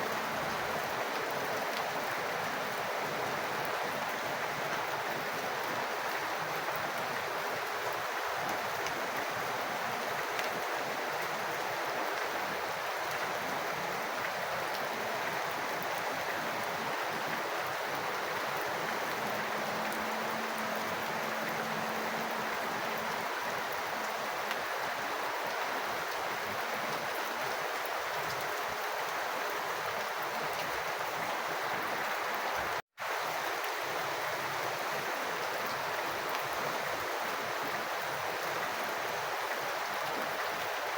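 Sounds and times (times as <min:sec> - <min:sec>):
rain water falling and running: 0:00.0 - 0:40.9.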